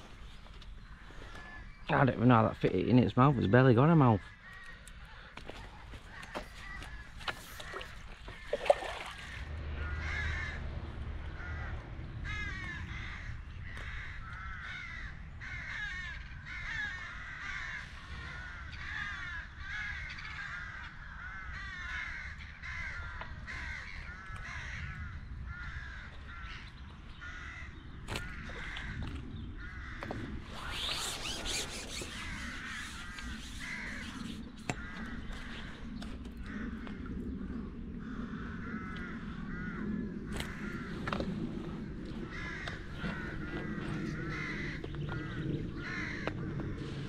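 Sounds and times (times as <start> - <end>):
bird calling: 29.6 - 37.0.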